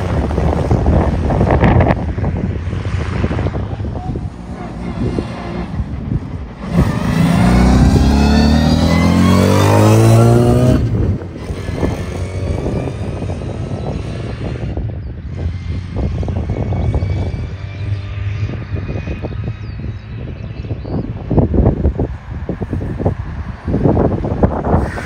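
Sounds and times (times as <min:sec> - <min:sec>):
wind buffeting microphone: 0:00.0 - 0:25.0
rally car engine passing: 0:03.2 - 0:13.7.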